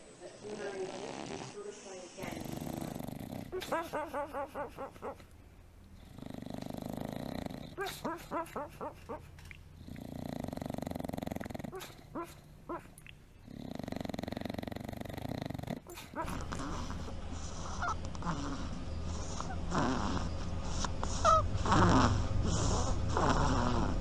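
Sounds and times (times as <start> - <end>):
dog snoring: 0.4 - 3.9, 5.9 - 8.4, 9.8 - 12.4, 13.4 - 24.0.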